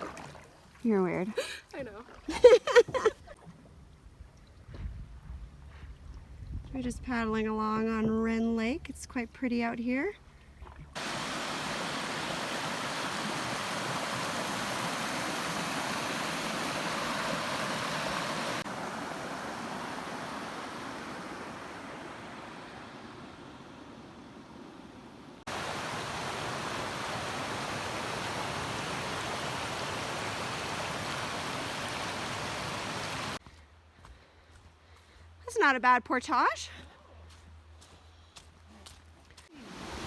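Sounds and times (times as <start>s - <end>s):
rushing water: 0.0s - 3.7s, 10.9s - 33.4s, 39.5s - 40.0s.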